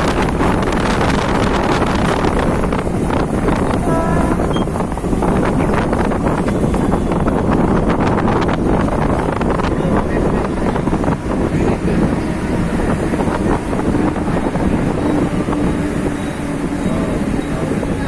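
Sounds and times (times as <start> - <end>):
train carriage rumble and rattle: 0.0 - 18.0
wind buffeting microphone: 0.0 - 18.0.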